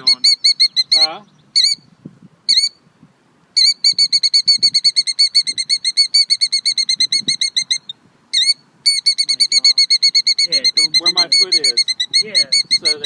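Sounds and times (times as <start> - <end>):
bird alarm calls: 0.0 - 1.9, 2.5 - 2.8, 3.6 - 13.0.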